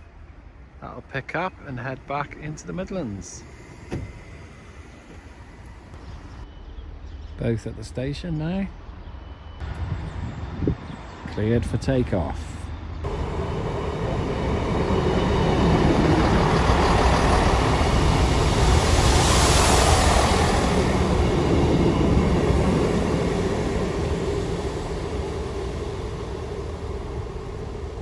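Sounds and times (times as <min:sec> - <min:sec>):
diesel train passing: 0:00.0 - 0:06.8, 0:08.2 - 0:28.0.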